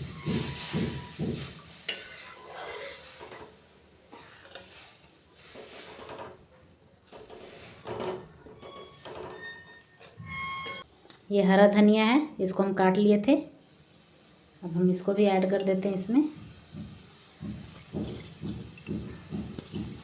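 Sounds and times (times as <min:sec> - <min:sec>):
spoon scraping metal pan: 0:00.0 - 0:06.4, 0:07.1 - 0:10.9, 0:17.6 - 0:18.9
water sizzling on hot food: 0:00.0 - 0:09.6, 0:12.4 - 0:20.0.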